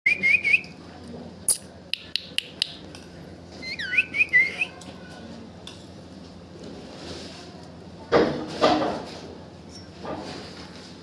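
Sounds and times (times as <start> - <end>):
baby parrot chirping and whistling: 3.6 - 4.7.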